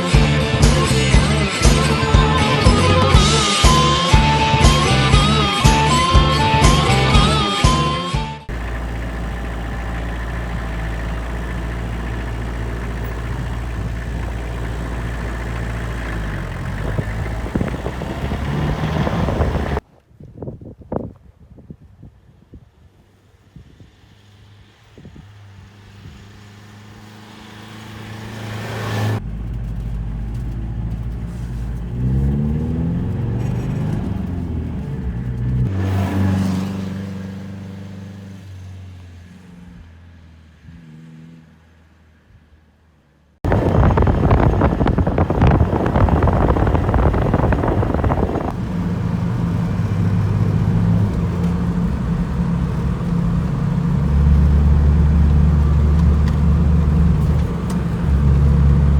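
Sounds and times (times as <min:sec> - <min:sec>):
diesel engine driving: 0:00.0 - 0:19.8, 0:24.2 - 0:39.3, 0:43.4 - 0:58.9
road and wind noise: 0:00.0 - 0:58.9.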